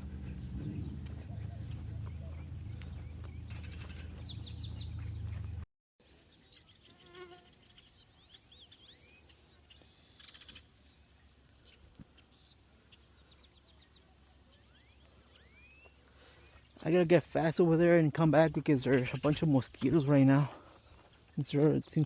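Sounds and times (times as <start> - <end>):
low rumble on microphone: 0.0 - 5.6
songbirds chirping: 0.0 - 22.0.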